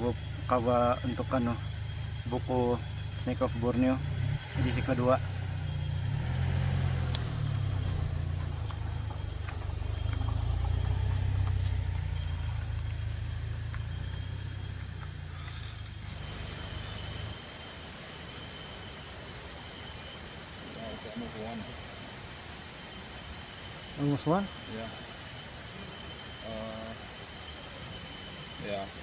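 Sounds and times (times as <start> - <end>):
engine idling hum: 0.0 - 29.0
faint high insect-like tone: 0.0 - 29.0
light clicks: 7.0 - 15.7.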